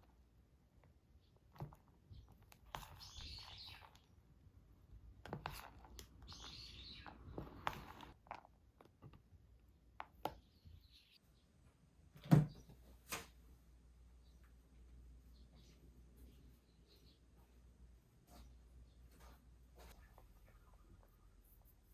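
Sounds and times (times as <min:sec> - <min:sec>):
faint bird chirps: 0:02.1 - 0:04.2, 0:06.2 - 0:08.0, 0:10.4 - 0:11.6, 0:15.2 - 0:17.6.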